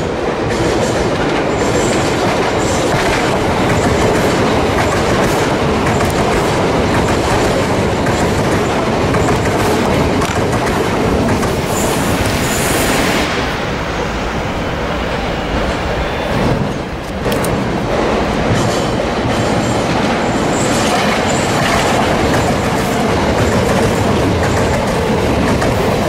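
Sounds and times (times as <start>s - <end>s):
train wheels rushing on rail: 0.0s - 26.0s
clicking over rail joints: 0.4s - 11.7s, 16.7s - 20.1s.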